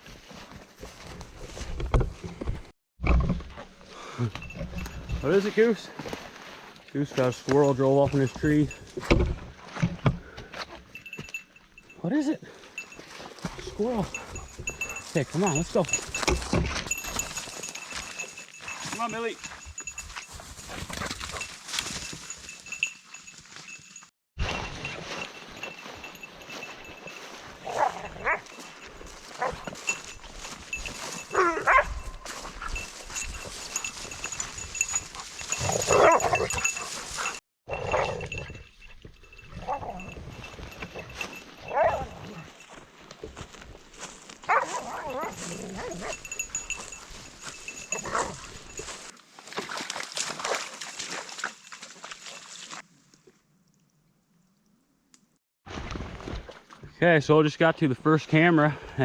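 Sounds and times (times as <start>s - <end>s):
footsteps through brush: 0.0s - 1.8s, 4.8s - 9.0s, 12.5s - 37.4s, 40.1s - 52.9s
dog whining and yelping: 44.5s - 46.2s.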